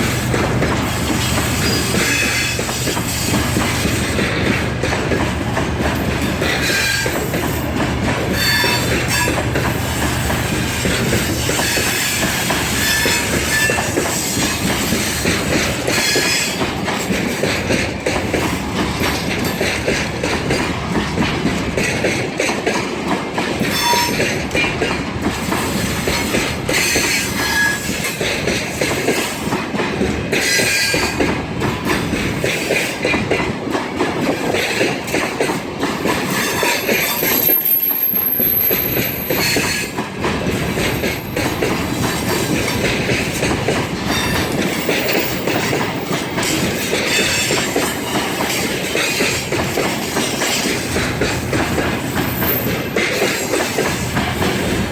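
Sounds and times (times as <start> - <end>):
train wheels clattering over rail joints: 0.0 - 54.9
high wheel squeals: 8.3 - 9.4, 11.4 - 14.3, 23.7 - 24.3, 26.8 - 28.0, 36.4 - 39.9.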